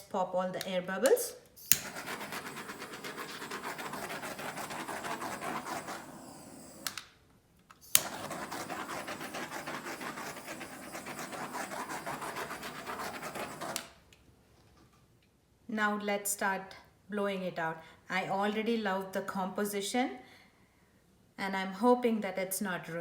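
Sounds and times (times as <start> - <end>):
torch igniter click: 1.0 - 3.0, 5.2 - 7.1, 7.8 - 9.0
torch flame hissing: 1.6 - 7.0, 7.8 - 14.0.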